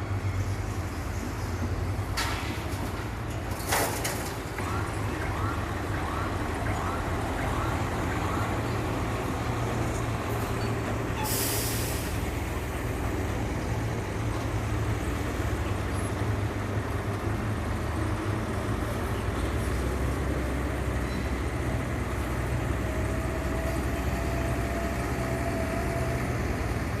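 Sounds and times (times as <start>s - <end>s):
diesel engine droning: 4.6s - 27.0s
air hiss: 11.2s - 12.3s.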